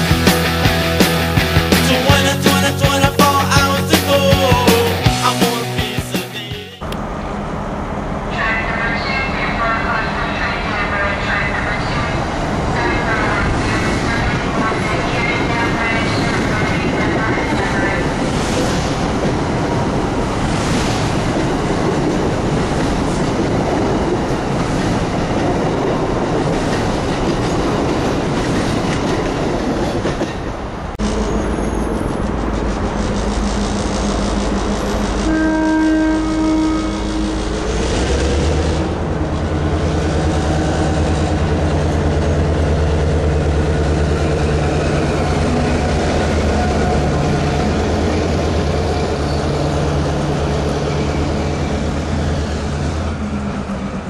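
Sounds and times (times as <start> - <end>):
diesel locomotive engine droning: 0.0 - 54.0
passenger train rushing past: 0.0 - 54.0
train horn: 33.1 - 37.9.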